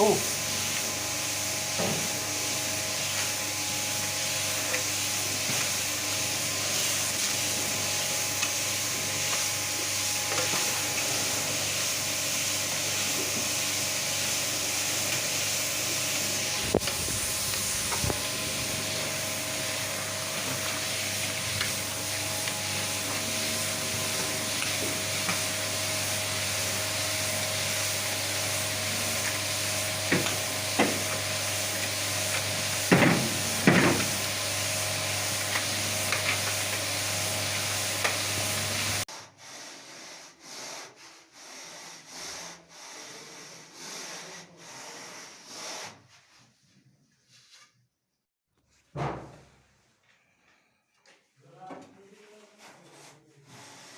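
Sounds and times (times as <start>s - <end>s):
machinery hiss: 0.0s - 39.0s
low motor hum: 16.4s - 26.0s.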